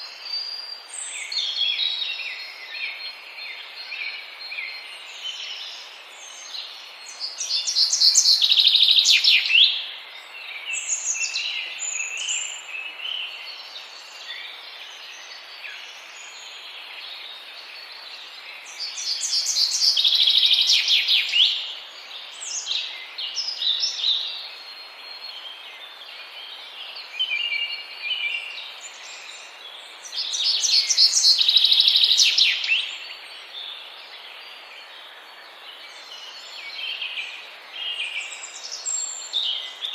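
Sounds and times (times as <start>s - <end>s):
background hiss: 0.0s - 39.9s.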